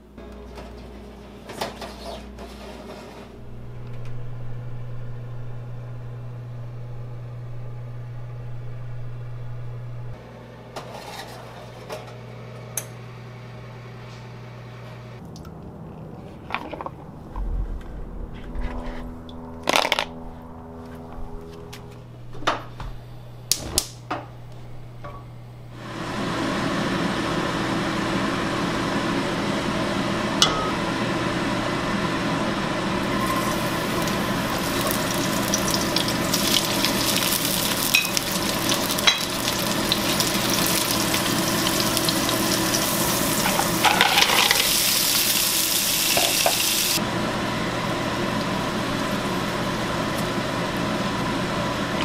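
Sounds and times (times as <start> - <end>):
frying sizzle in a wok: 33.0 - 52.0.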